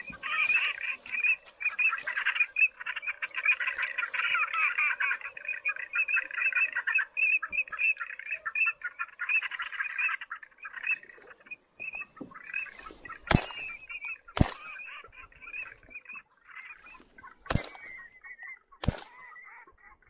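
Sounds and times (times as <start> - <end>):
waterbirds chattering: 0.0 - 20.0
shotgun shots: 13.3 - 14.8, 17.5 - 18.0, 18.8 - 19.2.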